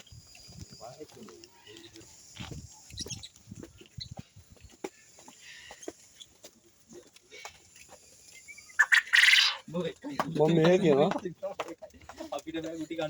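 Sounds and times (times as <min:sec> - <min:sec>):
faint bird calls: 0:08.3 - 0:09.7.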